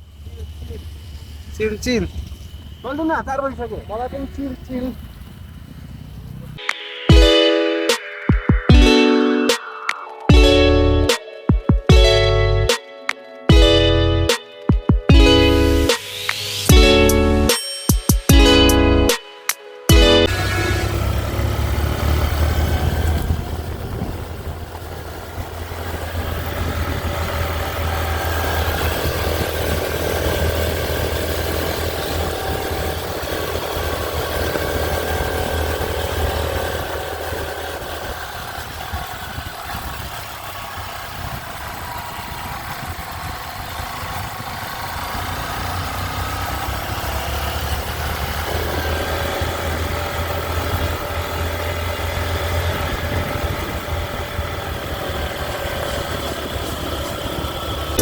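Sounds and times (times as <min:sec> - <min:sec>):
motorcycle engine running: 0:00.0 - 0:07.3, 0:10.3 - 0:12.8, 0:13.5 - 0:19.2, 0:19.9 - 0:58.0
wind rumble on microphone: 0:03.7 - 0:06.6, 0:21.8 - 0:45.3, 0:52.3 - 0:58.0.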